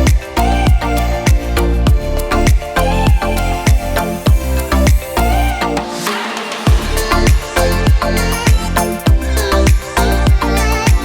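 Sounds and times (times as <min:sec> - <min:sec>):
dance music with kick drum: 0:00.0 - 0:05.2, 0:06.2 - 0:11.0.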